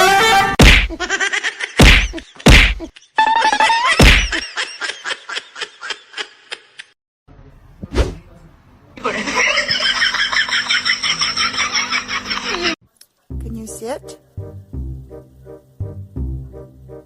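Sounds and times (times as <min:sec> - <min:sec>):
loud whacks and thuds: 0:00.6 - 0:01.0, 0:01.8 - 0:02.8, 0:04.0 - 0:04.4, 0:07.8 - 0:08.2.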